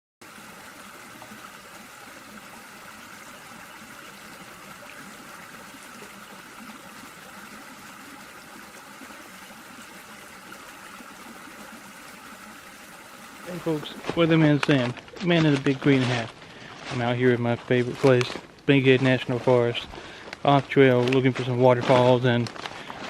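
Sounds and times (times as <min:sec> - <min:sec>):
waterfall rushing and splashing: 0:13.1 - 0:14.8.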